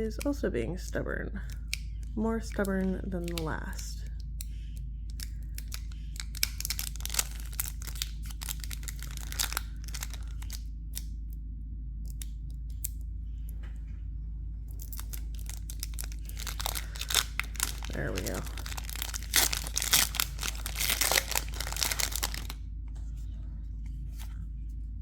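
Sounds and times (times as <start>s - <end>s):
low electrical hum: 0.0s - 25.0s
foil wrapper crinkling and tearing: 2.6s - 3.5s, 5.1s - 11.1s, 14.7s - 22.6s.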